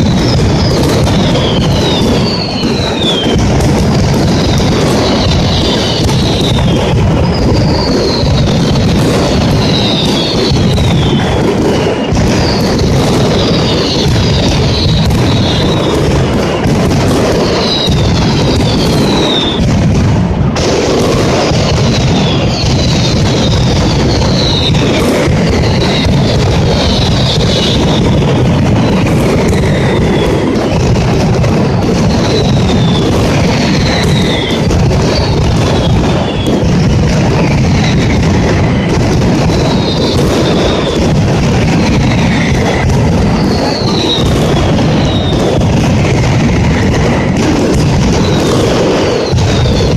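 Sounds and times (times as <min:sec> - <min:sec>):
falling whistles: 0:00.0 - 0:03.4, 0:04.3 - 0:16.6, 0:17.4 - 0:19.6, 0:21.4 - 0:28.2, 0:28.8 - 0:30.8, 0:32.1 - 0:36.6, 0:38.7 - 0:41.0, 0:42.0 - 0:45.4
firecracker bangs and booms: 0:00.0 - 0:49.9.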